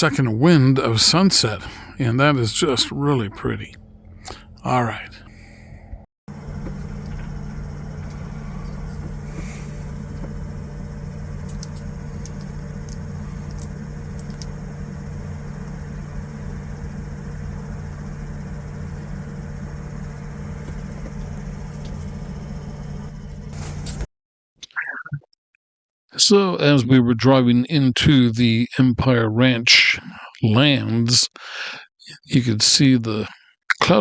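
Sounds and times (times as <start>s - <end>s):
steady hum: 0.0s - 24.1s
vehicle engine and road rumble: 0.0s - 24.1s.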